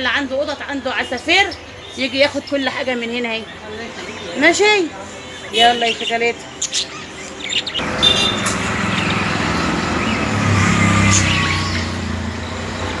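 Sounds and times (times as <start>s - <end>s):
road traffic noise: 0.0s - 13.0s
passing vehicle engine hum: 7.8s - 13.0s.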